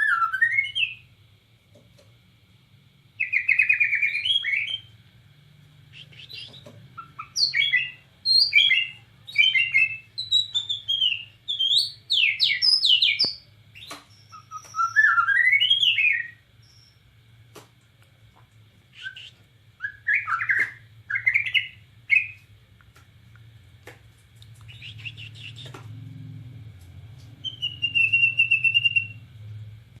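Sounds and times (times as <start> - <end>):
bird singing whistled phrases: 0.0 - 1.0, 3.2 - 4.9, 5.9 - 17.0, 19.0 - 22.4, 24.7 - 25.8, 27.4 - 29.2
faint low hum: 0.0 - 30.0.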